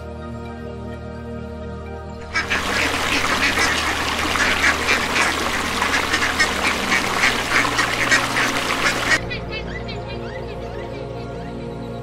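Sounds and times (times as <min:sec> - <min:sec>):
ducks quacking: 0:02.2 - 0:10.3.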